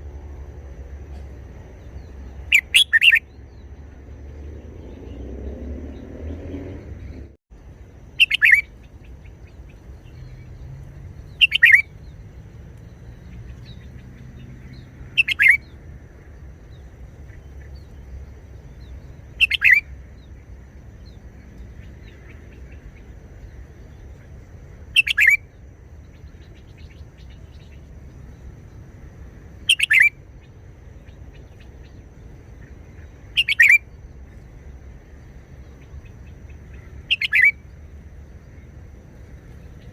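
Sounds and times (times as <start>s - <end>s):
bird singing whistled phrases: 2.5s - 3.3s, 8.2s - 8.7s, 11.3s - 12.0s, 15.2s - 15.7s, 19.4s - 19.8s, 25.0s - 25.5s, 29.7s - 30.2s, 33.4s - 33.9s, 37.1s - 37.6s.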